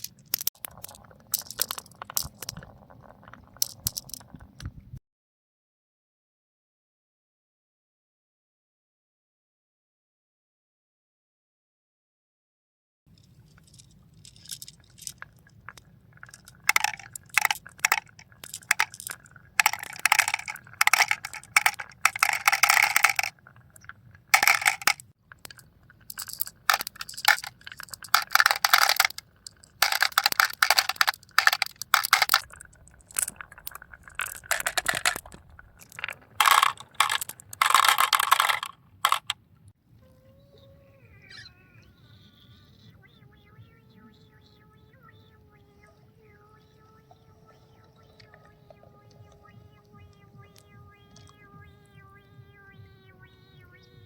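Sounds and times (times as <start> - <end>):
small hard objects clattering: 0.0 - 4.5, 13.1 - 39.4.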